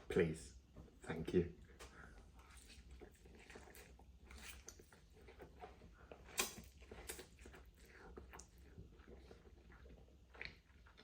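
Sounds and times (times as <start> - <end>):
person chewing noodles: 1.6 - 11.0.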